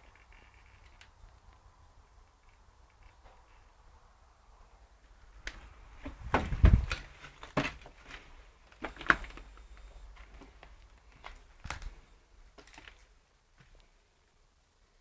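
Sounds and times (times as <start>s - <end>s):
knocks and thumps: 6.0s - 7.0s
heavy low thud: 6.1s - 6.9s.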